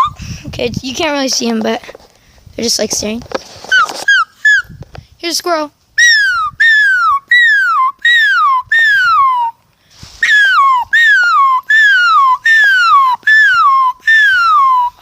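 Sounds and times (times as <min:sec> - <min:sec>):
person imitating squirrel calls: 0:00.0 - 0:00.2, 0:03.7 - 0:04.7, 0:06.0 - 0:09.6, 0:10.2 - 0:15.0.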